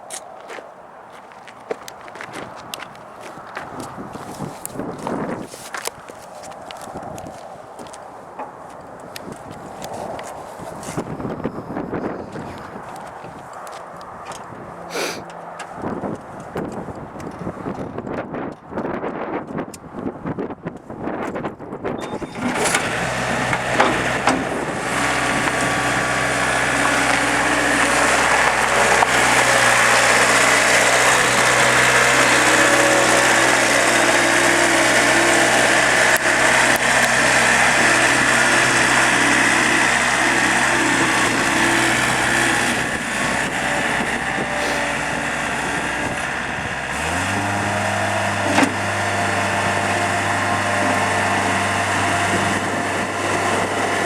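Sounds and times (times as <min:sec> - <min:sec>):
loader engine running: 0:22.0 - 0:54.0.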